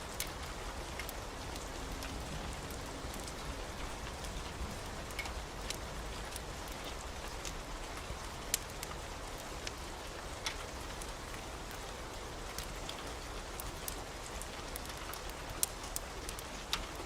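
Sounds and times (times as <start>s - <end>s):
raindrops ticking: 0.0s - 17.0s
steady rain hiss: 0.0s - 17.0s.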